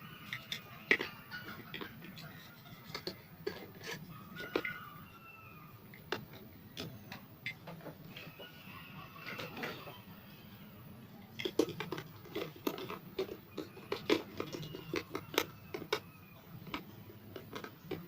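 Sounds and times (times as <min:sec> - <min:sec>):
objects clicking and knocking: 0:00.0 - 0:10.1, 0:11.3 - 0:18.0.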